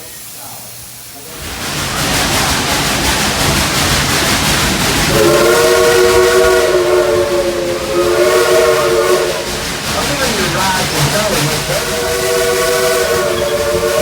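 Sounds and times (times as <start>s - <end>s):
steam locomotive hissing: 0.0s - 14.0s
train chime whistle: 10.0s - 14.0s.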